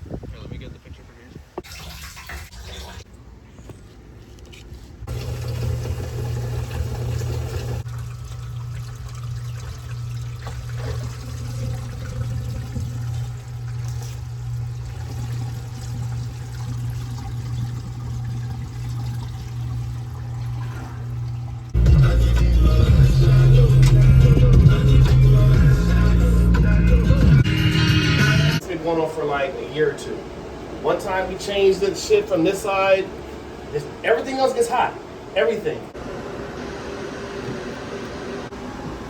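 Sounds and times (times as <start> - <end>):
water rushing through pipes: 1.6 - 3.1, 5.1 - 21.8
strong low hum: 5.1 - 28.8.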